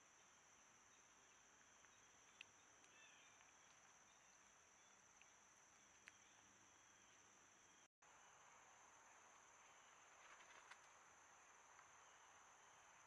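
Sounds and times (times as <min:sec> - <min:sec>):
high-pitched insect chorus: 0:00.0 - 0:13.0
faint ticks: 0:01.2 - 0:06.5.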